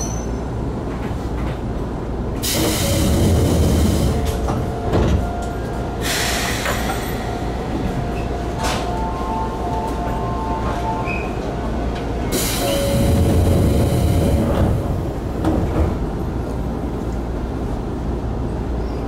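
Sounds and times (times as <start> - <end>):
electric train humming: 1.7 - 18.8
loud air hiss: 6.0 - 7.3.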